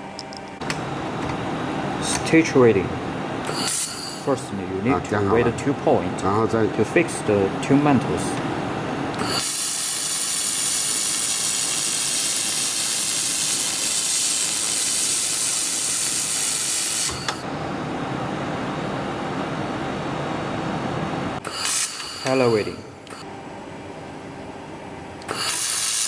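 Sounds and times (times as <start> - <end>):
laser welding gun hissing: 0.7 - 5.6, 8.8 - 17.5, 21.4 - 23.3, 25.2 - 26.0.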